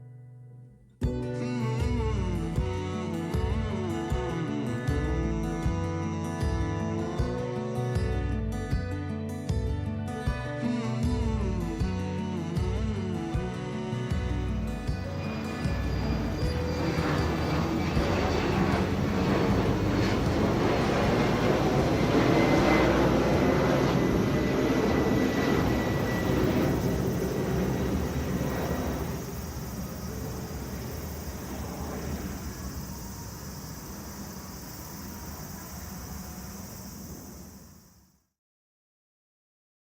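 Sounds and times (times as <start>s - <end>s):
airliner engines passing: 15.0s - 37.8s.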